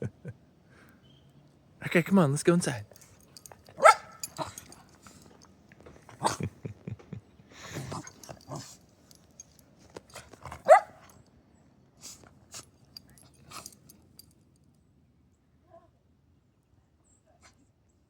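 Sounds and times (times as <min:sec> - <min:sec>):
dog barking: 0:03.7 - 0:04.8, 0:10.5 - 0:11.1.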